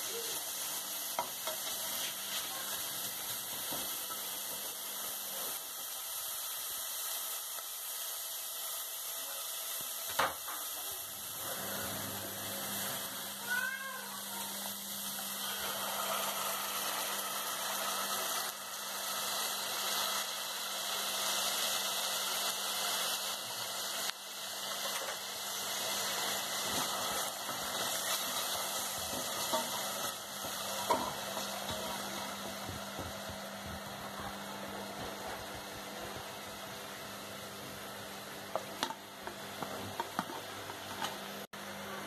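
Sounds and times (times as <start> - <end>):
meat and onions sizzling in pan: 0.0 - 41.8.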